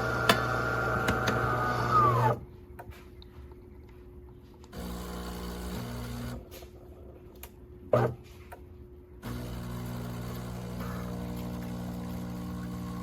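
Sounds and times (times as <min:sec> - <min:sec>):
espresso machine motor whine: 0:00.0 - 0:02.4, 0:04.7 - 0:06.6, 0:09.2 - 0:13.0
pitched pump hum: 0:00.0 - 0:13.0.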